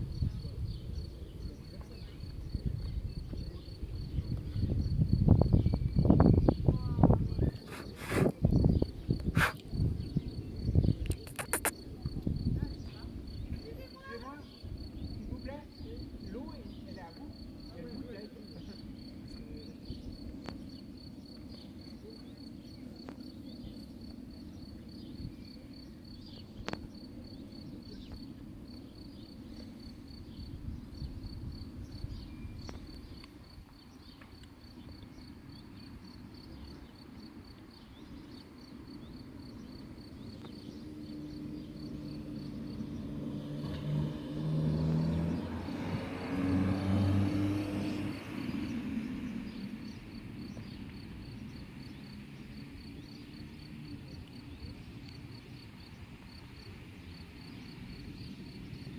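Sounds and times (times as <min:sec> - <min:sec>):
distant traffic rumble: 0:00.0 - 0:25.2, 0:26.2 - 0:58.9
cricket chirping: 0:00.0 - 0:58.9
vehicle engine approaching: 0:40.6 - 0:49.7.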